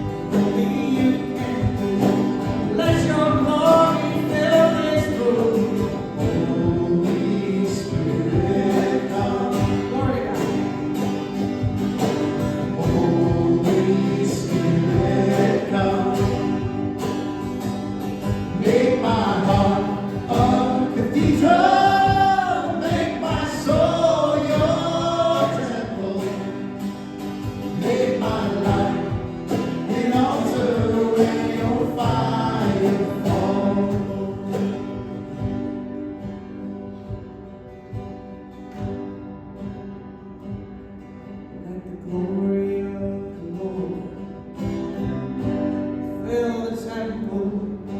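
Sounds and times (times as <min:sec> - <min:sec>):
gospel choir singing with band: 0:00.0 - 0:10.1, 0:12.0 - 0:17.2, 0:18.1 - 0:35.2.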